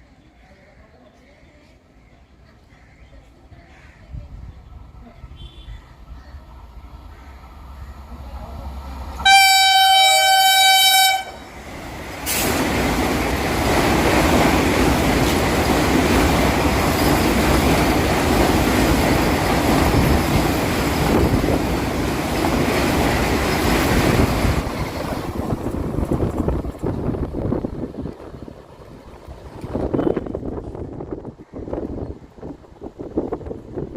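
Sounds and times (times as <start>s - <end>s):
train passing at high speed: 5.9s - 33.9s
train horn blast: 9.2s - 11.5s, 29.8s - 30.4s.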